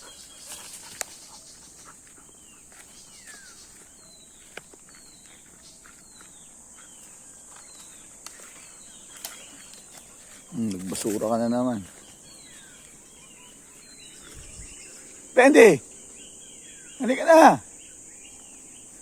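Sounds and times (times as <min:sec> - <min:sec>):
footsteps: 0:00.0 - 0:15.8
high-pitched insect drone: 0:07.0 - 0:19.0.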